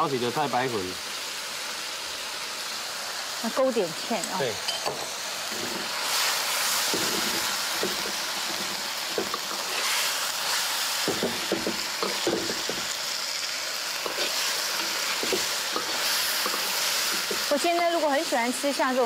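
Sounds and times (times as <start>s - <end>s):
tofu sizzling in a wok: 0.0s - 19.0s
spatula knocking and scraping: 11.1s - 12.9s, 14.0s - 17.4s.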